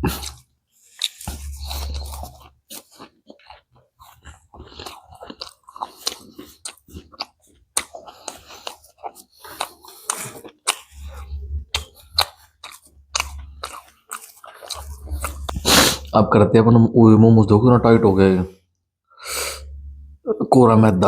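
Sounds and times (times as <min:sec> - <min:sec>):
chewing crunchy food: 0:00.0 - 0:16.2.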